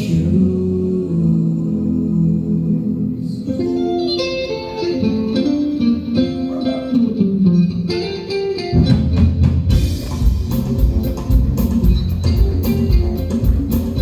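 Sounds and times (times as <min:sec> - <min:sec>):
guitar picking melody: 0:03.4 - 0:14.0
bass guitar: 0:03.6 - 0:14.0
drums: 0:08.7 - 0:14.0.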